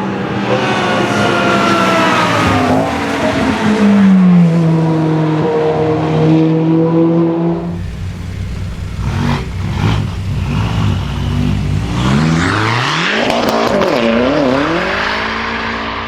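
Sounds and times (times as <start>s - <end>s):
car engine revving: 0.0s - 16.0s
loud rushing noise: 0.0s - 16.0s.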